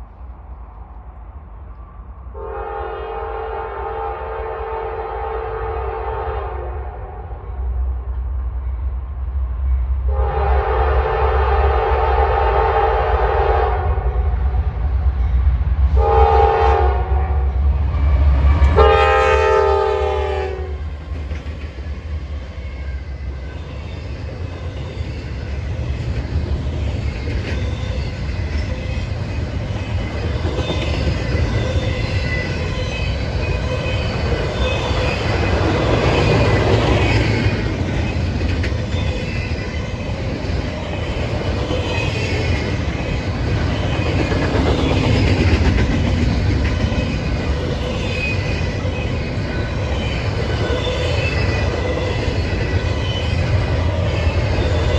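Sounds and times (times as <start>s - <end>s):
train horn chord blasts: 2.4s - 6.9s, 10.1s - 14.1s, 16.0s - 17.4s, 18.8s - 20.8s
train cars rolling past: 14.0s - 54.9s
wheels clacking on rail joints: 23.4s - 54.9s.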